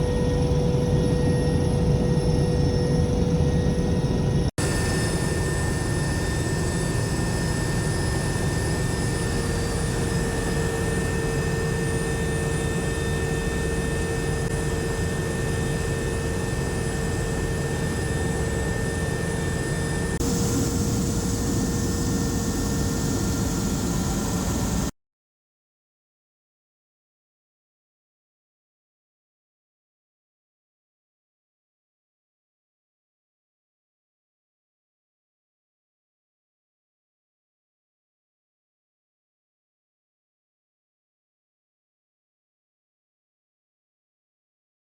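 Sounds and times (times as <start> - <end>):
turbine engines droning: 0.0 - 24.9.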